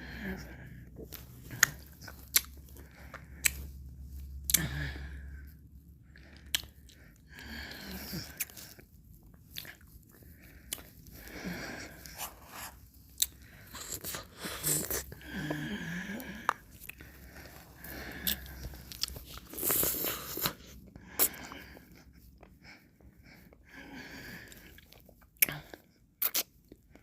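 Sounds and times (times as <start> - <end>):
licking and chewing: 1.0 - 3.8, 6.2 - 7.1, 16.2 - 20.6
wet mouth noise: 26.2 - 26.6.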